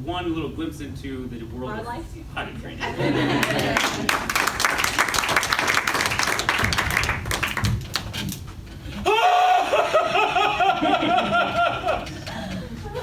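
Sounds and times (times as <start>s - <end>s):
audience clapping: 3.3s - 8.5s
high-pitched laugh: 9.1s - 13.0s.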